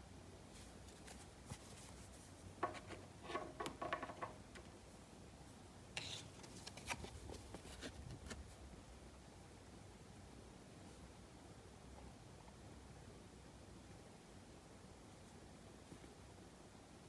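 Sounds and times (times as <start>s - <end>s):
cards and packaging rustling: 6.0s - 8.4s.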